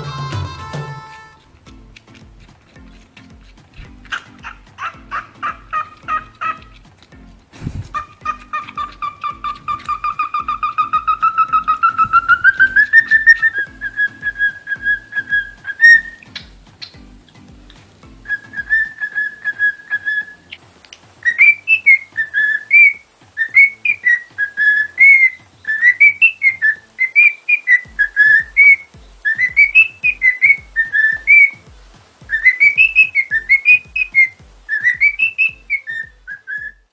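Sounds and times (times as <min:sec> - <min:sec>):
steady low beat: 0:00.0 - 0:18.9, 0:27.9 - 0:36.9.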